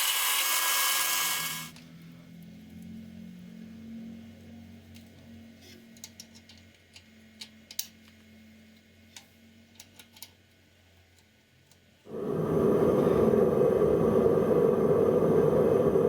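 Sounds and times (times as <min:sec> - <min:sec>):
power tool running: 0:00.0 - 0:01.7
metallic clicks and taps: 0:05.9 - 0:08.2.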